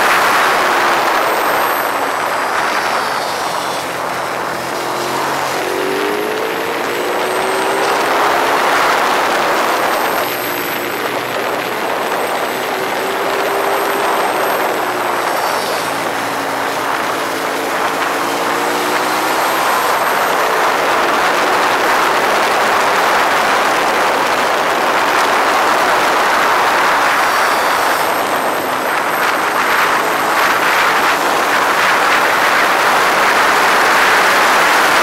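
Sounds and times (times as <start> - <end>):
loud rushing hiss: 0.0 - 7.9
motorcycle engine running at speed: 0.0 - 35.0.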